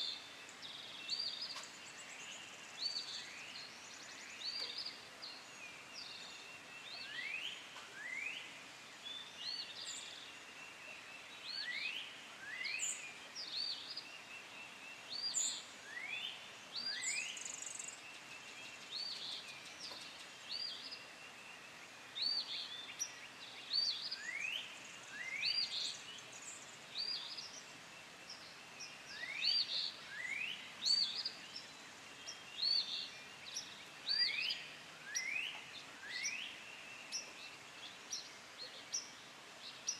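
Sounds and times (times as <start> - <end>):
faint outdoor background noise: 0.0 - 39.9
birds whistling and chirping: 28.3 - 39.1.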